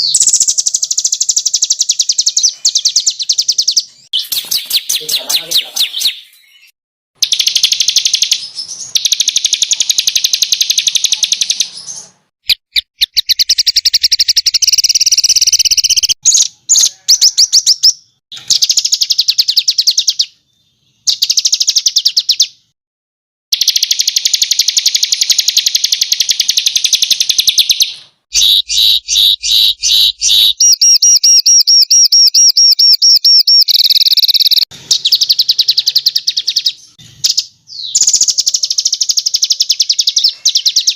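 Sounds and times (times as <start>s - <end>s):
songbird rapid high trills: 23.6s - 35.8s.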